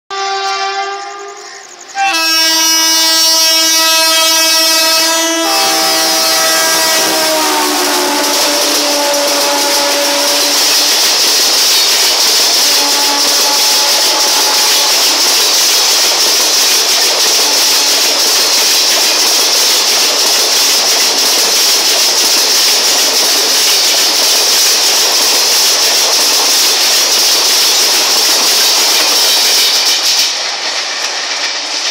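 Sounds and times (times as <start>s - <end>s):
locomotive horn: 0.1s - 11.0s, 12.5s - 15.2s
train wheels clattering over rail joints: 1.4s - 31.9s.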